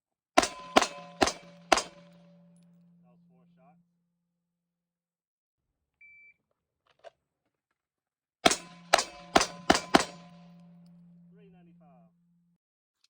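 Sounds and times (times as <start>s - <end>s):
rapid pistol shots: 0.4s - 2.2s, 8.4s - 10.6s
metallic ringing: 0.4s - 3.8s, 8.5s - 12.6s.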